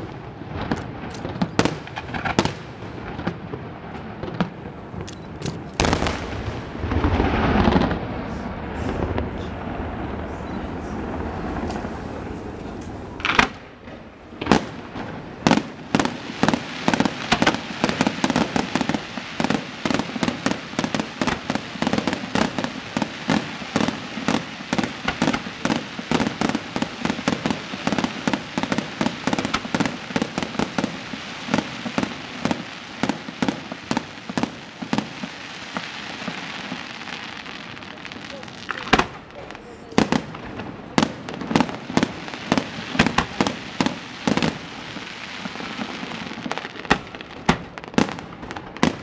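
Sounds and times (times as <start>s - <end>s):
firework shells bursting: 11.2s - 49.0s.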